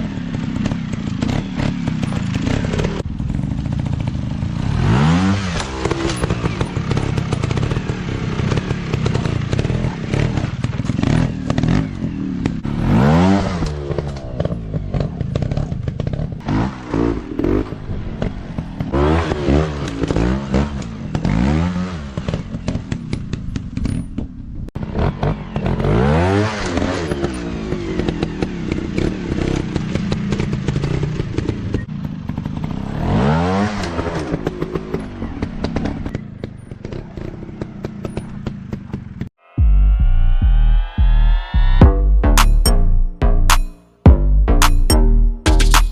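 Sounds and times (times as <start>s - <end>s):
dirt bike engines revving: 0.0s - 23.2s
clatter: 0.0s - 39.3s.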